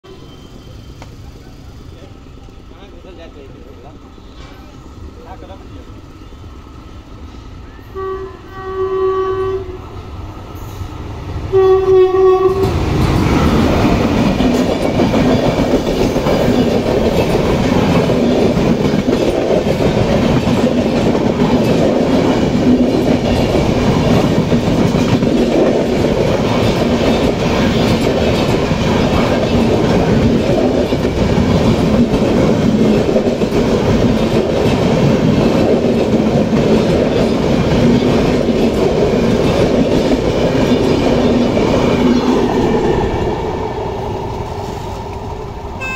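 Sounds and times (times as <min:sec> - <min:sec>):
train coaches rumbling past: 0:00.0 - 0:45.9
electric locomotive horn: 0:07.7 - 0:10.0, 0:11.5 - 0:12.8
wheel clatter on rails: 0:12.7 - 0:42.6.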